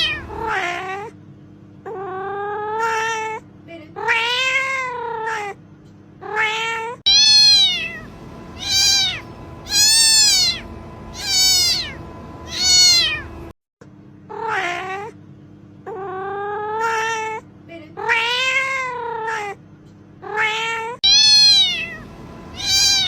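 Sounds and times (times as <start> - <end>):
cat meowing: 0.0 - 0.6, 6.3 - 13.3, 20.3 - 23.0.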